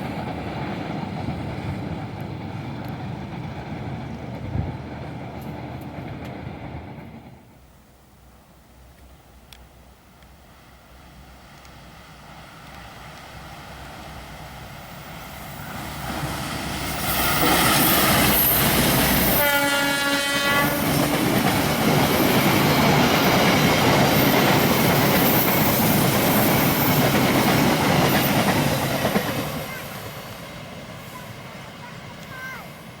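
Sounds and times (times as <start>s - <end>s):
train passing: 0.0s - 33.0s
locomotive horn blast: 19.3s - 21.0s.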